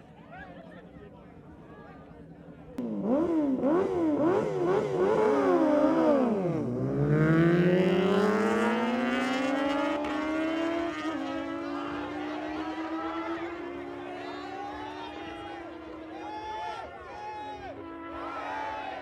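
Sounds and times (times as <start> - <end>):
motorcycle engine revving: 2.8 - 16.1.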